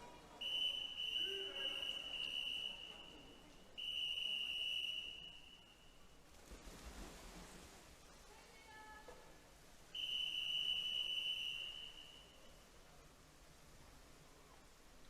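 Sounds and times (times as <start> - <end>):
referee's whistle long blasts: 0.4 - 6.1, 10.0 - 12.5.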